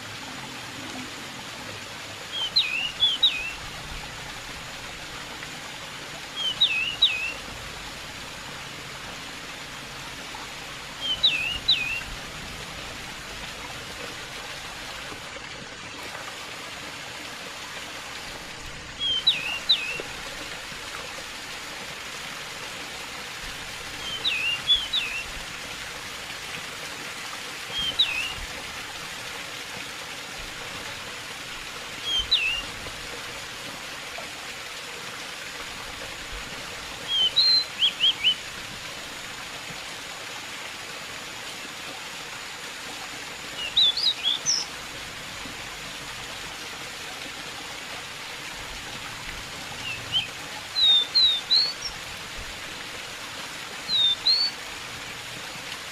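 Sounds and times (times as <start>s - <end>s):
running water hiss: 0.0s - 55.9s
bird singing whistled notes: 2.3s - 3.6s, 6.4s - 7.4s, 11.0s - 12.1s, 19.0s - 20.0s, 24.0s - 25.3s, 27.7s - 28.4s, 32.0s - 32.7s, 37.1s - 38.4s, 43.6s - 44.7s, 49.8s - 52.0s, 53.9s - 54.5s.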